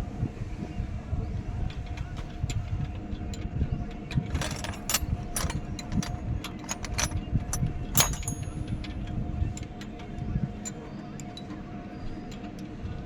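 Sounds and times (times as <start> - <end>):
metal clicks and clinks: 4.1 - 9.0.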